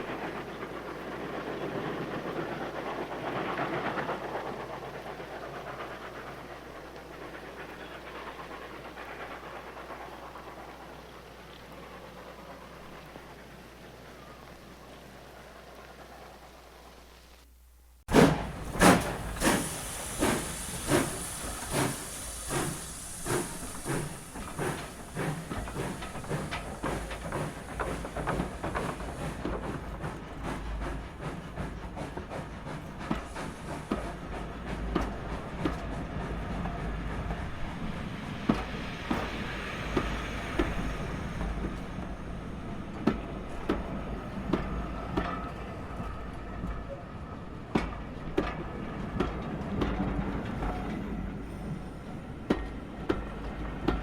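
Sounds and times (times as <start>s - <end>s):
low train rumble: 0.0s - 54.0s
high hiss: 8.0s - 45.6s
train wheels clacking over rail joints: 18.1s - 54.0s.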